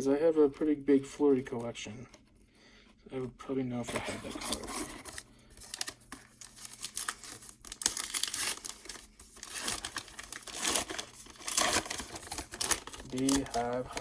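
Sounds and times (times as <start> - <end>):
trading cards crinkling and rustling: 3.7 - 14.0.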